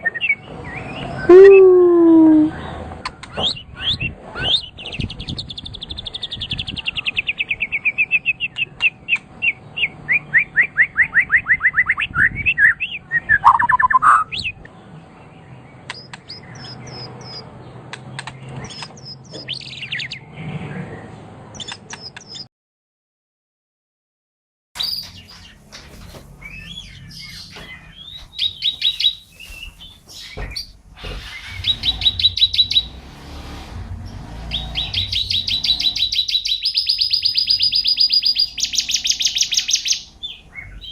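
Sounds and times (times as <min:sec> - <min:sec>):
songbird singing: 0:00.0 - 0:20.3, 0:24.8 - 0:33.2, 0:33.9 - 0:40.9.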